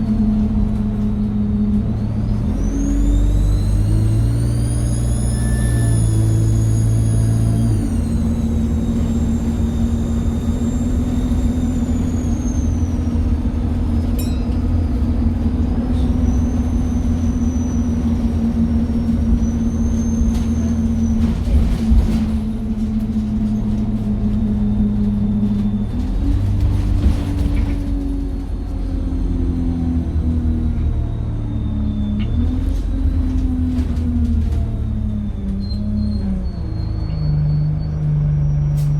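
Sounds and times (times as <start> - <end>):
bus diesel engine running: 0.0 - 38.9
turbocharger whistle: 2.7 - 12.8.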